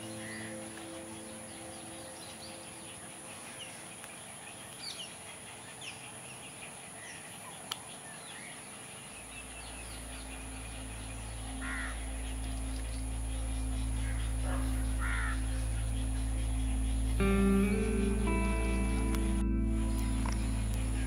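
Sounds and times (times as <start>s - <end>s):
soft music with low drone: 0.0s - 4.6s, 9.2s - 21.0s
birds chirping: 0.0s - 21.0s.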